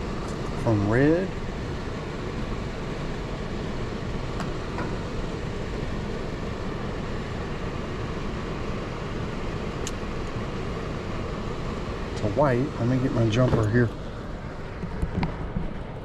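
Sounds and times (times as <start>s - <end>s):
air handler blower running: 0.0s - 16.0s.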